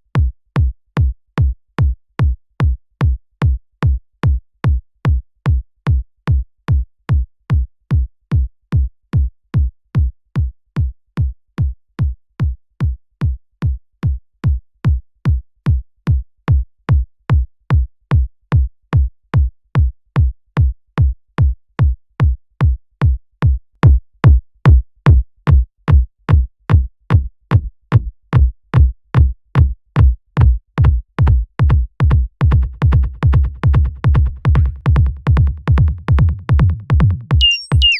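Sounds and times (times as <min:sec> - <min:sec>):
electronic kick drum loop: 0:23.4 - 0:37.9.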